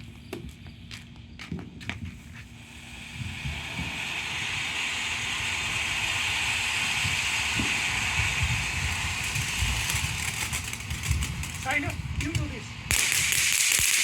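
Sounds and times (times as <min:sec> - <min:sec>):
wind rumbling on microphone: 0:00.0 - 0:14.0
steady hiss: 0:02.2 - 0:14.0.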